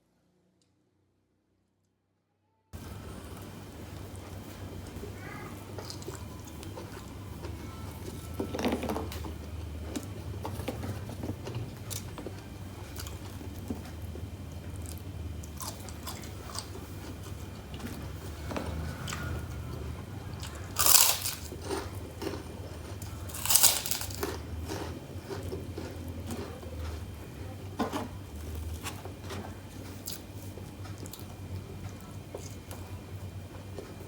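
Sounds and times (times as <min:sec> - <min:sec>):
low steady hum: 0:02.8 - 0:34.0
chewing with small crunches: 0:03.2 - 0:34.0
crunchy bites into crackers: 0:20.4 - 0:26.5.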